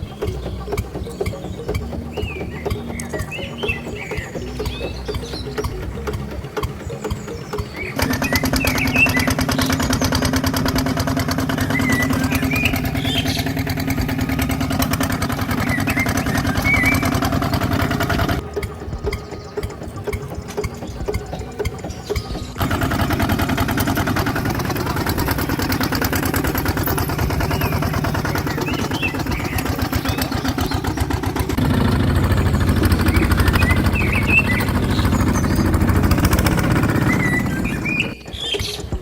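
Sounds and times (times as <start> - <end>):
small engine running: 0.0 - 39.0.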